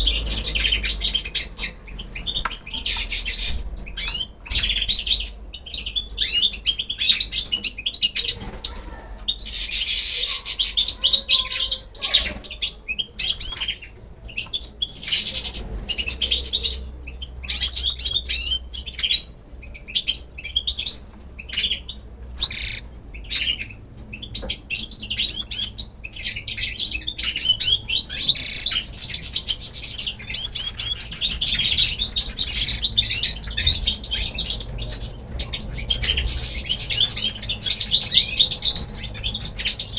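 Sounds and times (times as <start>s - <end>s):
flock of small birds chirping: 0.0s - 39.9s.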